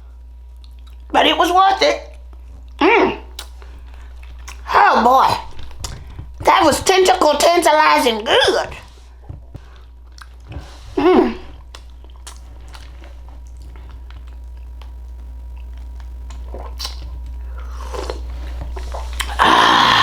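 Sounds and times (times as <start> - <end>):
chewing and mouth clicks: 0.5 - 1.1, 2.2 - 4.7, 8.8 - 10.8, 11.5 - 19.4.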